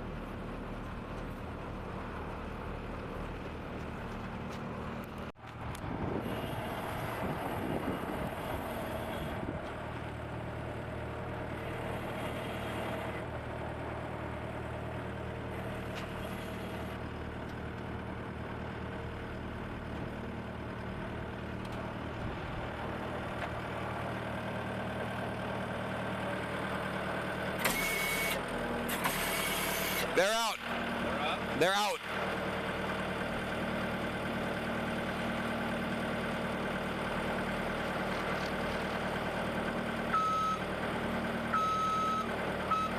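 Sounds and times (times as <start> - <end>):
skid steer engine running: 0.0 - 42.9.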